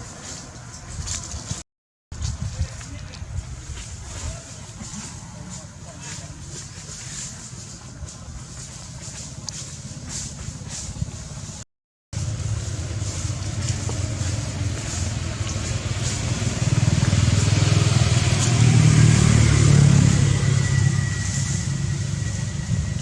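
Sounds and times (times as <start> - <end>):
vehicle engine running: 5.0 - 23.0.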